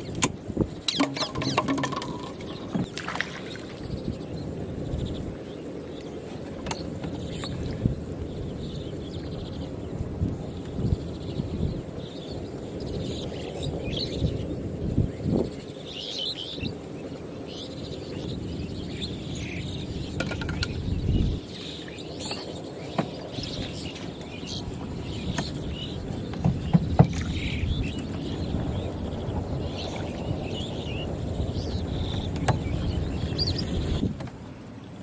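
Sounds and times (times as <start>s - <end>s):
small birds chirping: 0.0s - 34.1s.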